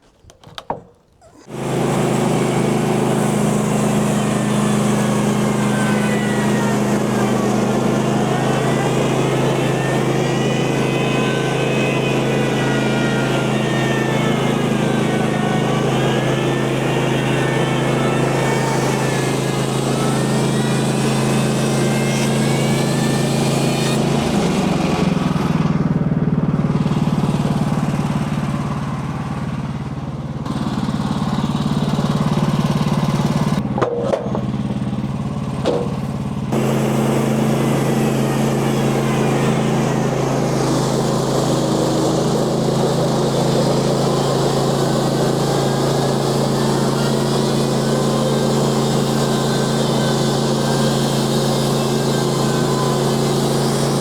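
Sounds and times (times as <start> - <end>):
sawmill gas engine running: 0.7 - 54.0
high whine of band blade: 1.3 - 25.5, 35.6 - 54.0.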